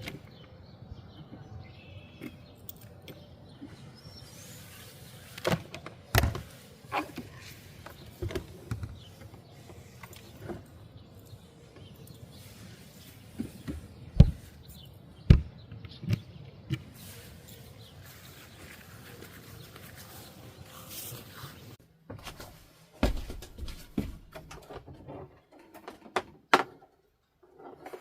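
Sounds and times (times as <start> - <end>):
knocks and thumps: 13.4 - 14.4, 15.3 - 16.3, 22.1 - 25.0.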